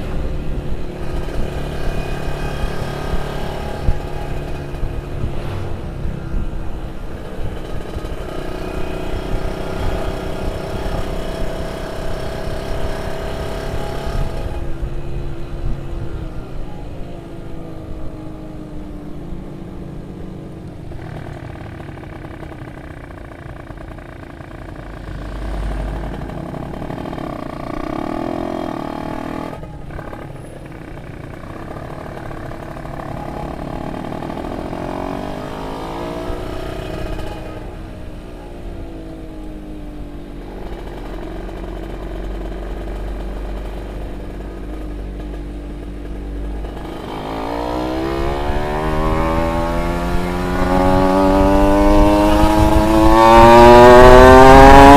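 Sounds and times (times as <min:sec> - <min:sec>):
two-stroke engine revving: 0:20.9 - 0:37.9, 0:40.5 - 0:54.9.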